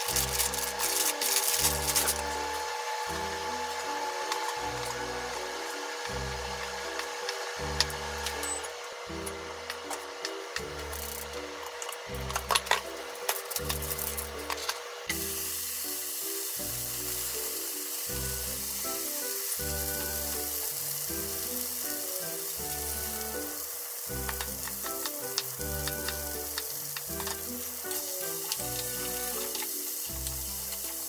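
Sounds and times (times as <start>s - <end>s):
food sizzling in frying pan: 0.0s - 8.4s, 15.1s - 31.0s
background music: 0.0s - 31.0s.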